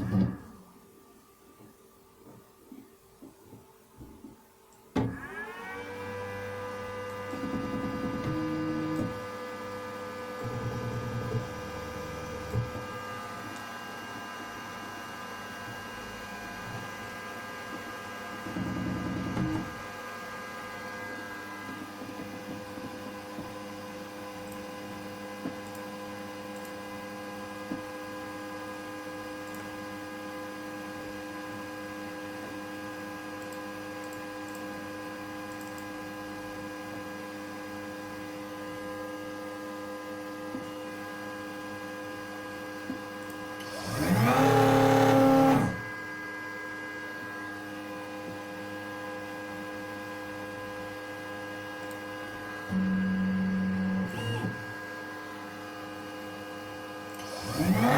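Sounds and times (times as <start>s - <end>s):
machine whine rising and falling: 5.1s - 13.5s, 43.6s - 47.8s, 57.2s - 57.9s
router machine humming: 43.6s - 45.9s, 52.5s - 55.3s, 57.2s - 57.9s.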